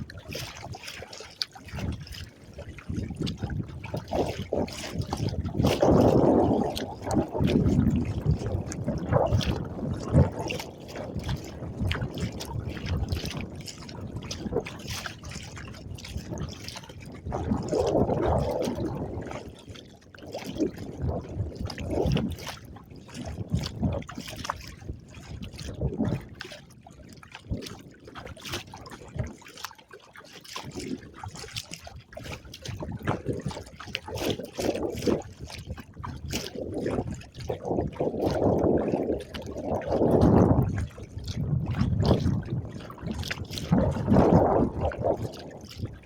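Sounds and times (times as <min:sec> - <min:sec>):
water splashing against kayak hull: 0:00.0 - 0:46.0.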